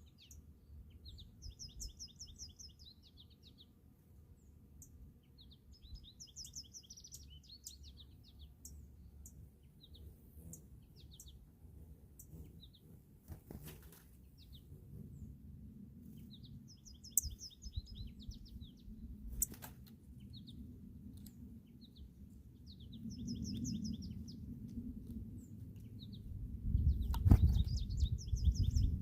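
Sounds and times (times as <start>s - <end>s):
sparrow singing whistled notes: 0.0s - 3.7s, 4.8s - 11.4s, 16.1s - 19.6s, 21.7s - 24.4s, 25.4s - 29.0s.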